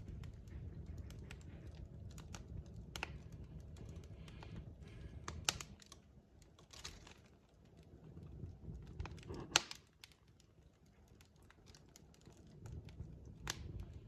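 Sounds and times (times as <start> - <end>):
low rumble: 0.0 - 6.1
wood fire crackling and popping: 0.0 - 14.0.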